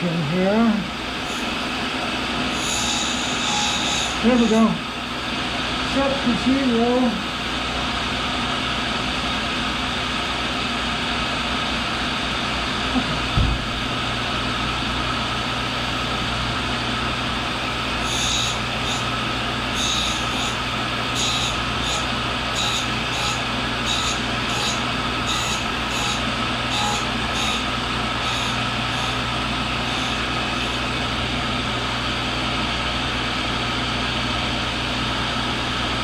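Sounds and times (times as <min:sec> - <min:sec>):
lathe cutting metal: 0:00.5 - 0:12.8, 0:13.6 - 0:33.9
low thump: 0:13.3 - 0:14.0
sharp high-pitched bursts: 0:18.0 - 0:30.9.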